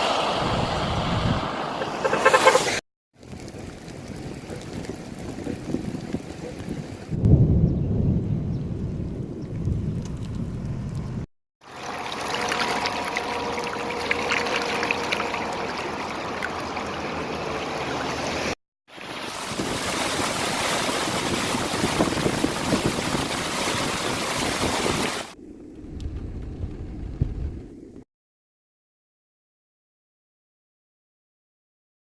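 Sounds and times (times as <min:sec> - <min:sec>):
rushing rain runoff water: 0:00.0 - 0:07.2, 0:10.0 - 0:25.4.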